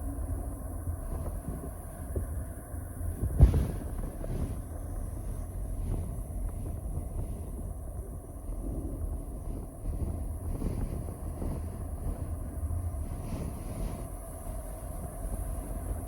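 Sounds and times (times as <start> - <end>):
wind buffeting microphone: 0.0 - 16.0
sudden thump: 3.3 - 3.9.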